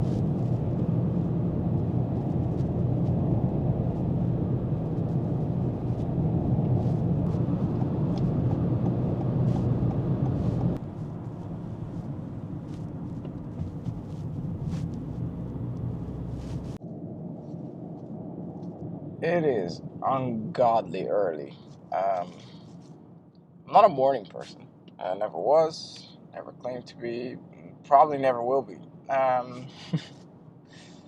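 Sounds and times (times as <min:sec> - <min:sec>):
car driving rumble: 0:00.0 - 0:30.9.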